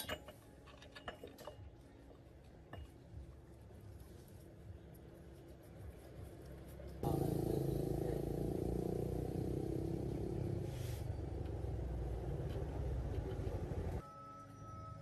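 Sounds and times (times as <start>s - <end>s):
engine running: 7.0s - 14.0s.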